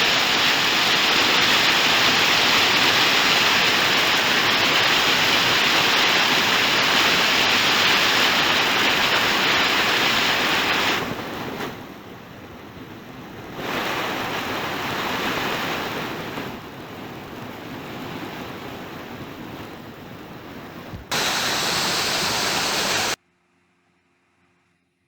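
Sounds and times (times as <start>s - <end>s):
waterfall rushing: 21.1s - 23.2s.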